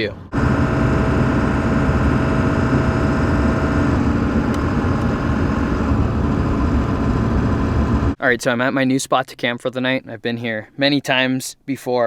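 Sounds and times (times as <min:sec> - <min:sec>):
road rumble: 0:00.1 - 0:08.2
pickup engine drone: 0:00.2 - 0:08.2.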